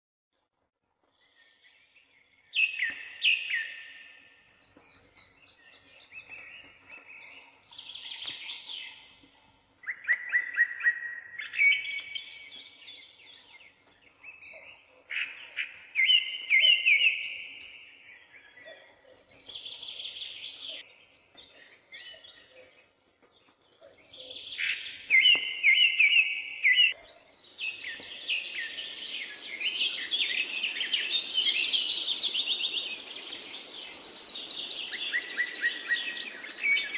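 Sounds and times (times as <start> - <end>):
songbirds singing: 1.0 - 36.9.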